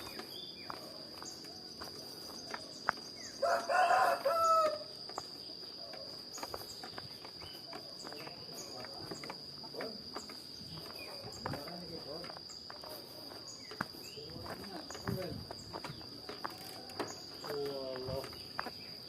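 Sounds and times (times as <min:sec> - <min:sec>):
high insect trill: 0:00.0 - 0:19.0
rooster crowing: 0:03.4 - 0:04.9.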